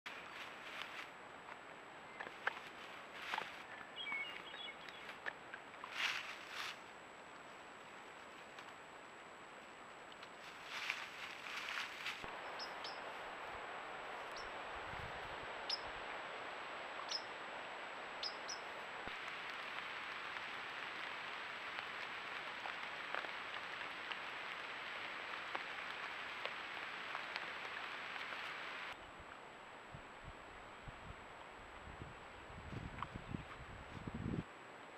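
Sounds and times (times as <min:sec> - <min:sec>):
steady hiss: 0:05.9 - 0:29.0.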